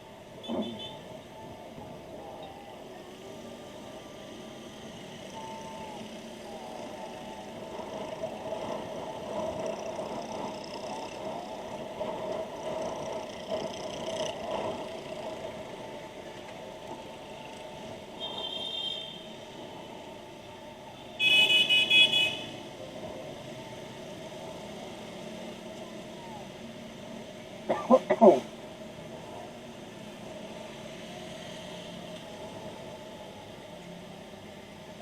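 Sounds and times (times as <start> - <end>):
road traffic and engine noise: 0.0 - 35.0
vehicle horn honking: 21.2 - 22.5.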